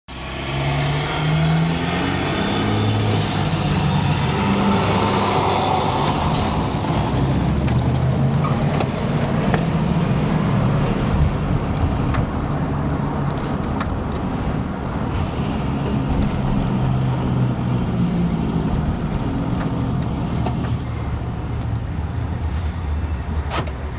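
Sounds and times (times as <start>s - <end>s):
road noise: 0.1s - 23.9s
vehicle engine: 0.1s - 23.9s.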